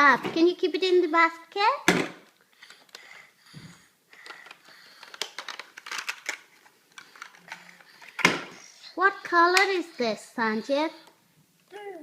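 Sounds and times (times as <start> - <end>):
small toys clicking: 4.1 - 8.3.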